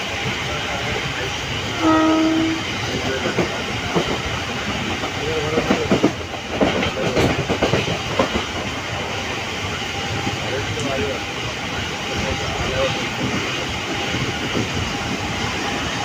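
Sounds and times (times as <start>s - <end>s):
train rumbling with wheel clatter: 0.0s - 16.0s
train horn note: 1.8s - 2.8s.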